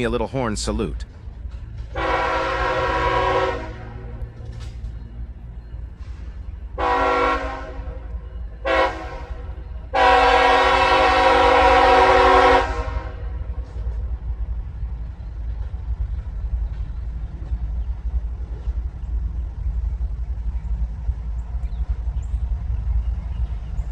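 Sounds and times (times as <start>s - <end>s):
locomotive air horn blasts: 1.9s - 4.2s, 6.8s - 13.5s
low rumble: 12.7s - 23.9s.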